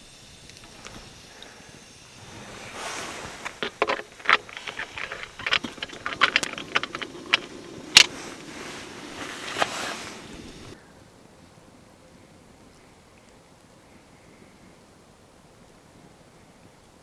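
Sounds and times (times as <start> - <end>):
small hard objects clicking: 2.3 - 10.8.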